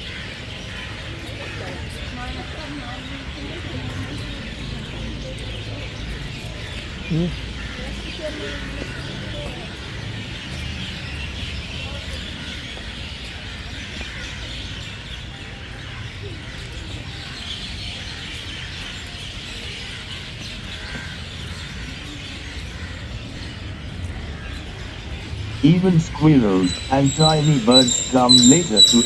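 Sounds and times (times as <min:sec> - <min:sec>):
parrots calling and chirping: 0:24.3 - 0:29.0.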